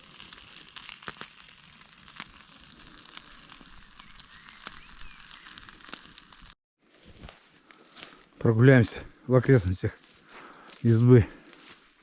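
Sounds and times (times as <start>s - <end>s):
campfire crackling and popping: 0.0s - 8.6s.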